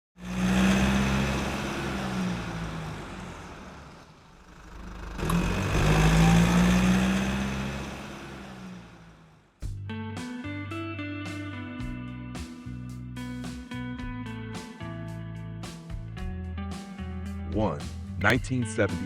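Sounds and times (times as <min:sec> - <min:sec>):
car engine passing by: 0:00.2 - 0:09.4.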